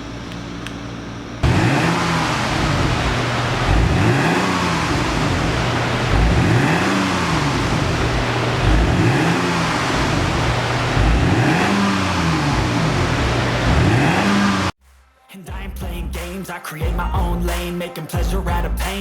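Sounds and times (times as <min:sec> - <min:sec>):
car engine revving: 0:01.4 - 0:14.8.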